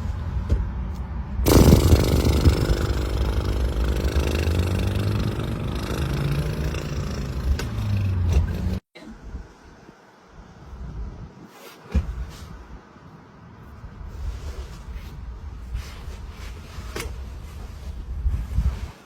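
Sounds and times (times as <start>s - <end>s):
car engine surging: 1.4s - 8.8s.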